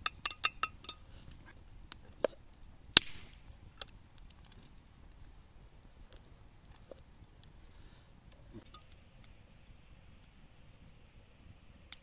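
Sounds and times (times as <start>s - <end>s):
spoon tapping and scraping steel pot: 0.0s - 1.0s.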